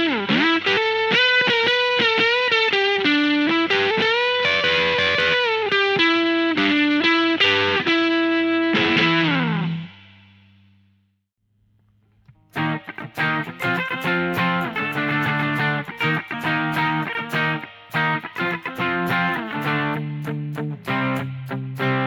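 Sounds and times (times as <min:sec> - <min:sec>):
distorted electric guitar lead: 0:12.5 - 0:22.0.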